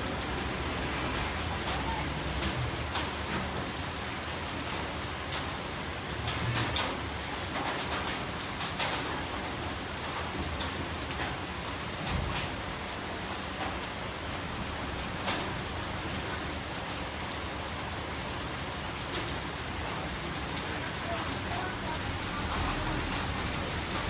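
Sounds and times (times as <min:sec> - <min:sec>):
rain falling: 0:00.0 - 0:24.0
raindrop taps: 0:00.5 - 0:03.9, 0:06.2 - 0:16.6, 0:19.0 - 0:24.0.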